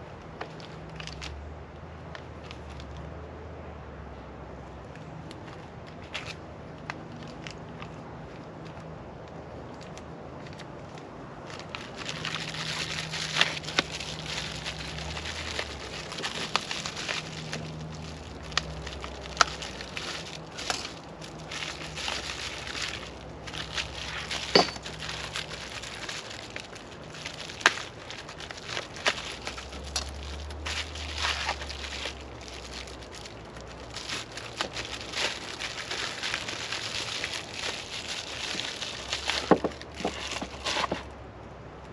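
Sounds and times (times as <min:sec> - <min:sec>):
plastic packaging crinkling: 0:09.8 - 0:41.1.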